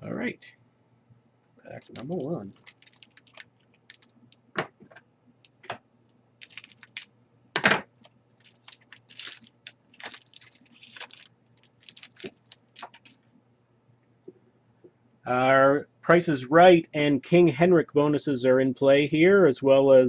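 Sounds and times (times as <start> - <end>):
wrapper tearing and crinkling: 1.7 - 4.4, 6.4 - 7.1, 8.0 - 13.2.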